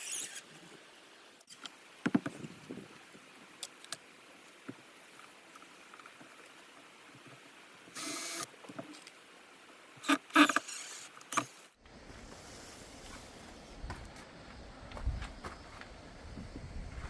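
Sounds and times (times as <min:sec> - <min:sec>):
low outdoor rumble: 0:11.8 - 0:17.0.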